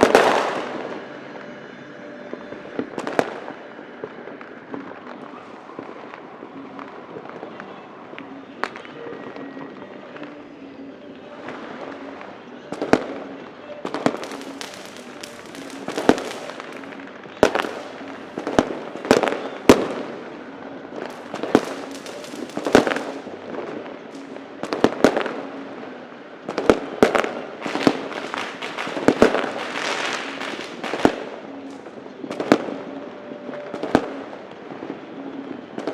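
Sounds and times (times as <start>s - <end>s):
firecrackers banging: 0.0s - 10.6s, 11.3s - 35.9s
distant crackle of small bangs: 13.9s - 16.8s, 21.1s - 23.2s, 26.5s - 31.2s.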